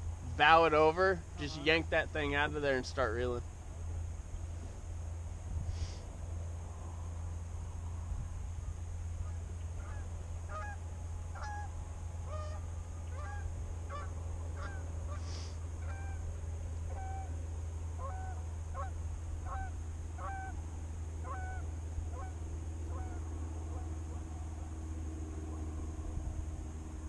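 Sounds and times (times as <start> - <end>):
geese honking: 0.4 - 2.8, 9.8 - 10.8, 11.4 - 11.7, 12.3 - 16.2, 18.0 - 18.9, 21.2 - 22.3, 22.9 - 23.8.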